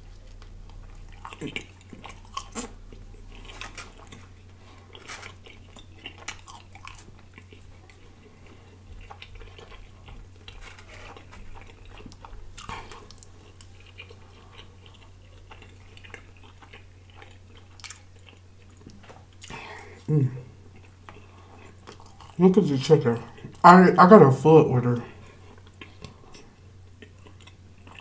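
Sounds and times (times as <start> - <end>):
chewing bread: 0.0 - 23.6, 25.0 - 28.0
faint low hum: 0.0 - 28.0.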